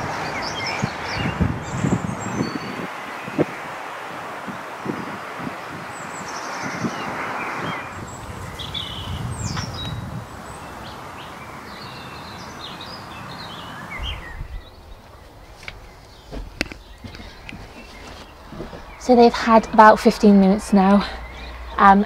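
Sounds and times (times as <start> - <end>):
small birds chirping: 0.0 - 3.8, 4.9 - 22.0
outdoor rushing noise: 0.0 - 11.7.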